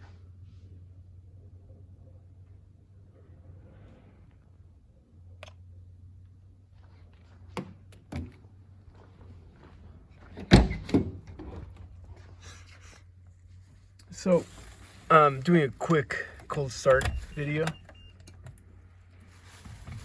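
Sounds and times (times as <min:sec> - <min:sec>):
low steady hum: 0:00.0 - 0:20.0
vehicle door shutting: 0:15.9 - 0:18.5.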